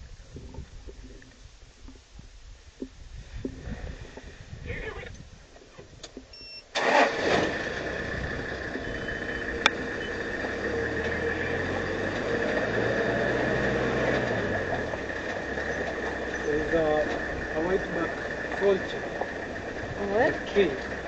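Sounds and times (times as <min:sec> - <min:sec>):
vehicle engine starting and running: 0:06.7 - 0:21.0.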